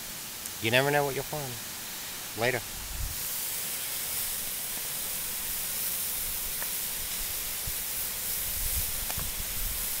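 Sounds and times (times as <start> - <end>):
waterfall pouring into pool: 3.3 - 10.0.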